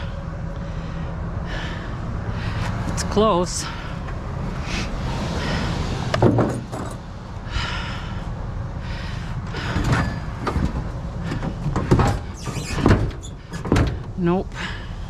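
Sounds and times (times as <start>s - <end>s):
load clattering and jangling: 6.2s - 7.1s.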